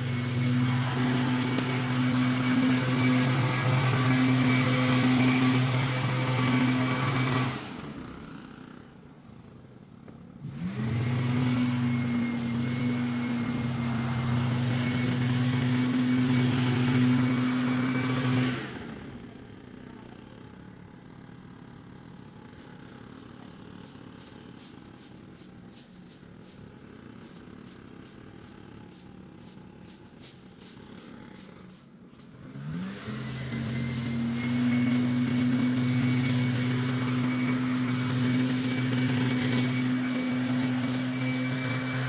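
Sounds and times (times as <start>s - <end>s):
engine revving: 0.0s - 7.6s, 10.4s - 19.0s, 32.4s - 42.0s.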